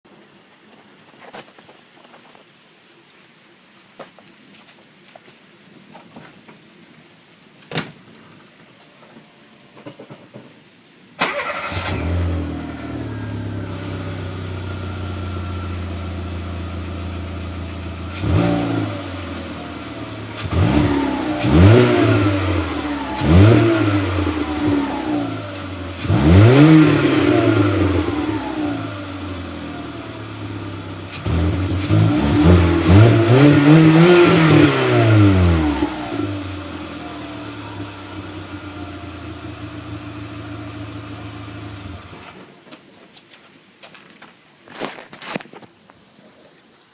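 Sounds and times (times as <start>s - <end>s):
car engine starting and revving: 11.2s - 42.4s.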